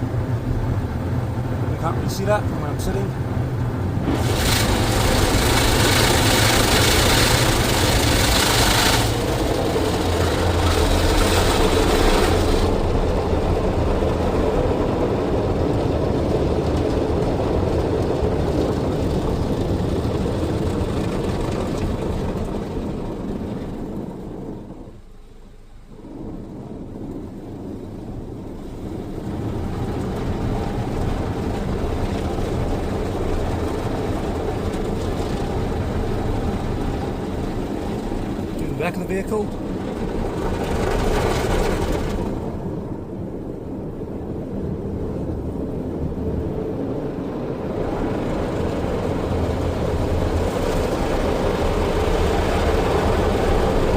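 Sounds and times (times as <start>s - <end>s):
car wash machine drive: 0.0s - 24.8s, 26.0s - 53.9s
spinning car wash brushes: 3.8s - 24.0s, 28.0s - 42.8s
water spray on car body: 4.0s - 13.8s.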